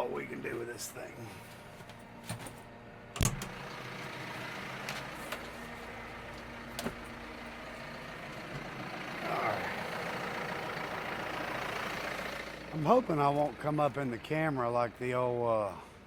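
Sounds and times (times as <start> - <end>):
tractor engine idling: 2.7 - 16.0.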